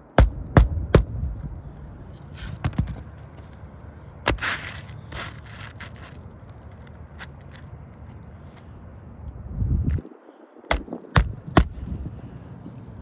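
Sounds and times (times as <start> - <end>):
sharp knocks: 0.1 - 1.2, 10.7 - 11.8
scraping and rustling: 1.4 - 8.7.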